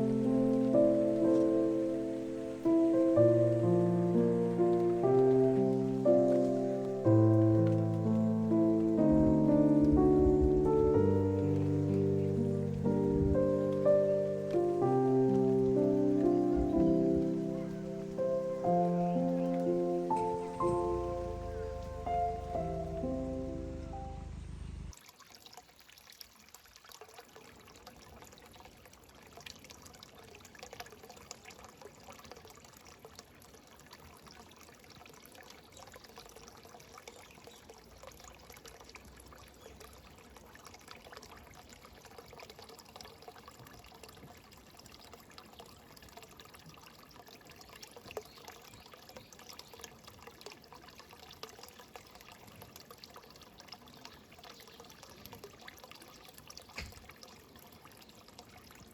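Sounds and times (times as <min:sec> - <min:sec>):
faint trickle of running water: 0:00.0 - 0:24.0, 0:24.9 - 0:58.9.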